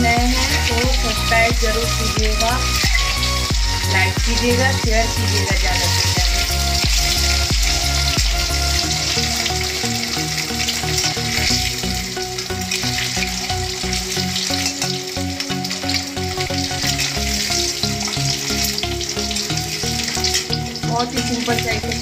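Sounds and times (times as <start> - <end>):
eggs sizzling in oil: 0.0 - 22.0.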